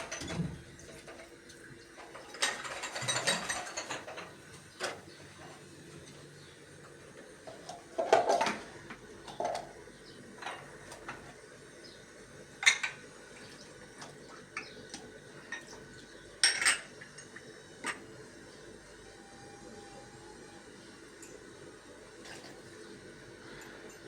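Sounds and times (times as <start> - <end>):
dishes and metal utensils clattering: 2.0 - 5.6, 7.5 - 9.8, 10.4 - 11.3, 12.6 - 13.0, 16.4 - 18.0.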